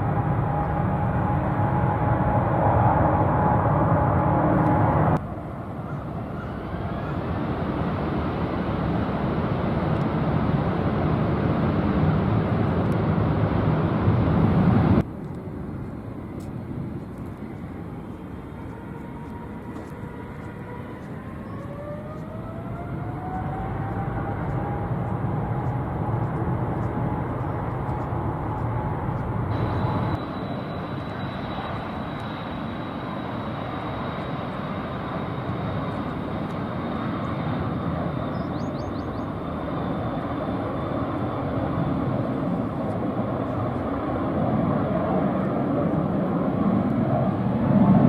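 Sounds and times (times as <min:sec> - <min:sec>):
jet engines spooling up: 0:00.0 - 0:05.3, 0:06.5 - 0:48.0
jet roar with falling whine: 0:00.0 - 0:48.0.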